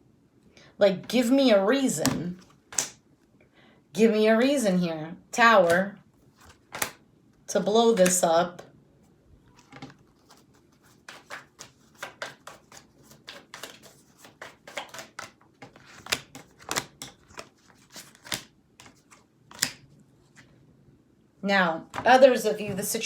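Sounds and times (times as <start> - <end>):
cards being shuffled: 2.0 - 3.0, 5.6 - 7.0, 7.9 - 8.3, 9.5 - 20.5.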